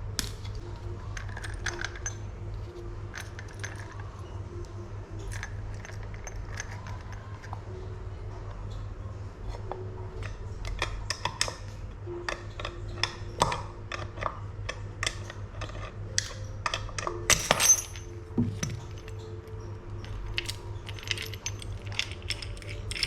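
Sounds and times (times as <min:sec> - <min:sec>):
steady low hum: 0:00.0 - 0:23.0
metal parts and tools clinking: 0:00.1 - 0:04.6, 0:05.2 - 0:07.7, 0:12.3 - 0:23.0.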